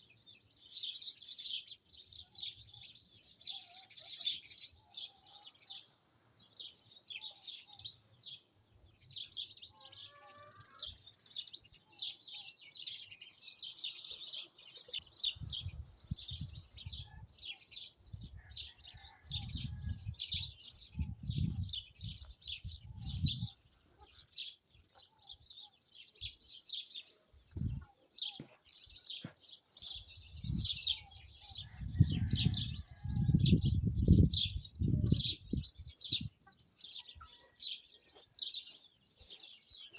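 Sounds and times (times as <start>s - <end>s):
small birds twittering: 0.0s - 33.4s, 34.1s - 39.9s
wind rumbling on microphone: 15.2s - 17.4s, 18.0s - 23.6s, 27.5s - 27.9s, 30.2s - 36.4s.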